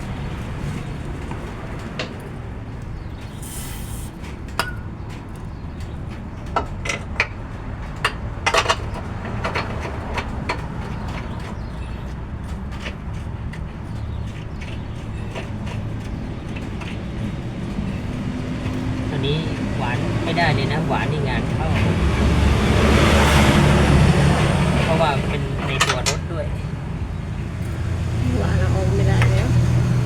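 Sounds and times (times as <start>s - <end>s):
metal tools clinking: 25.6s - 26.3s.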